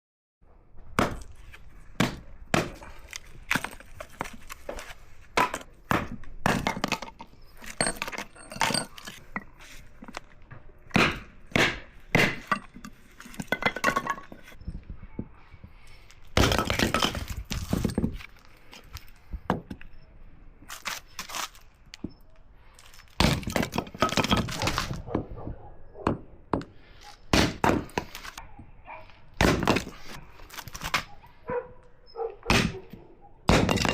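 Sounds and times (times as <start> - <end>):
hatchet chopping wood: 0.9 - 1.4, 2.0 - 4.3, 5.4 - 7.2, 10.9 - 12.7, 23.2 - 25.2, 26.0 - 28.3, 29.4 - 30.0, 32.5 - 32.8, 33.5 - 33.9.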